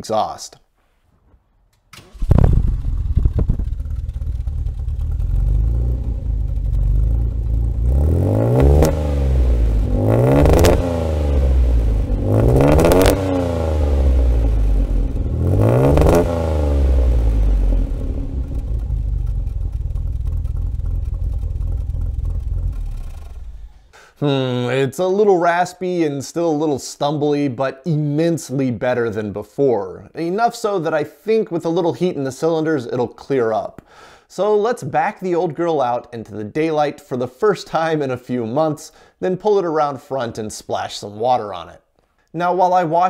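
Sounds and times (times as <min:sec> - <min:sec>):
car engine starting and revving: 0:01.9 - 0:23.8.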